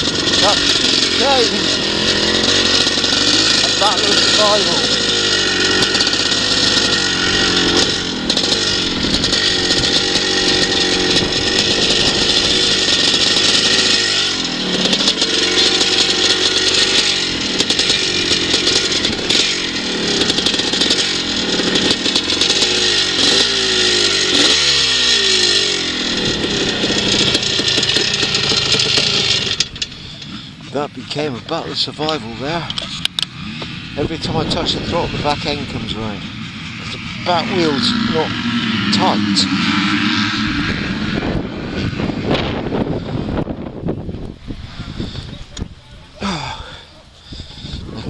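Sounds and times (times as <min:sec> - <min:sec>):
motorbike engine revving: 0:00.0 - 0:48.0.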